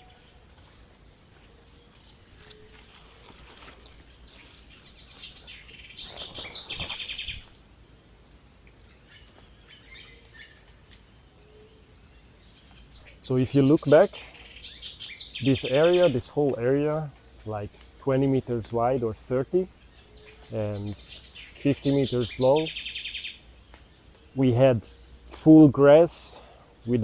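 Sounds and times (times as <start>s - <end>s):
insects droning: 0.0s - 27.0s
bird calling: 1.8s - 7.6s, 12.7s - 27.0s.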